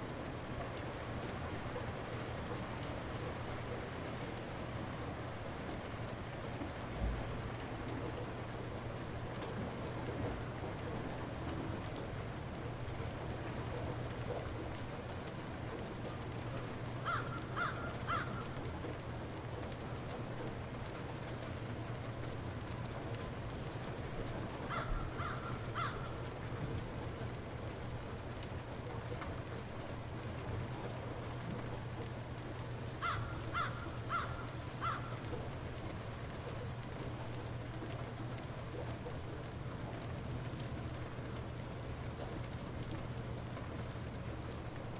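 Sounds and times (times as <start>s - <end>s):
light rain falling: 0.0s - 44.9s
bird calling: 17.1s - 18.4s, 24.7s - 26.1s, 33.0s - 35.2s
bird calls: 33.0s - 35.2s.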